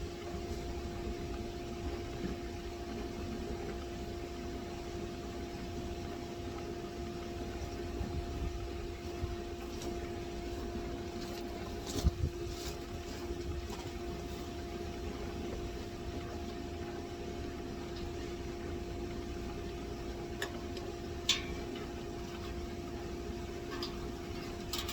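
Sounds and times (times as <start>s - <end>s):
machine hum: 0.0s - 24.9s.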